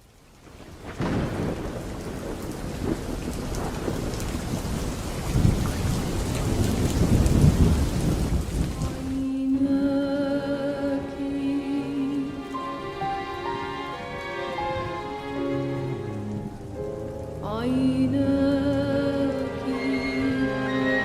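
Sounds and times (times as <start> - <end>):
heavy rain falling: 0.0 - 21.0
thunder rumbling: 0.4 - 9.6.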